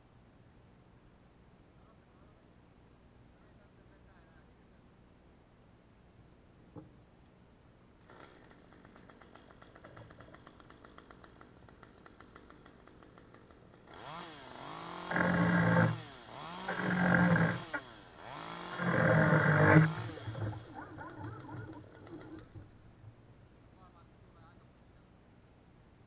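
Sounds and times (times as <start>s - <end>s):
chainsaw running and revving: 8.0s - 22.2s.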